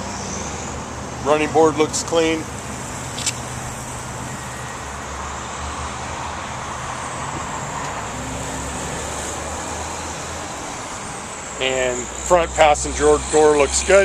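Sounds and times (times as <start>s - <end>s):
road traffic rumble: 0.0s - 14.0s
brief click: 3.2s - 3.4s.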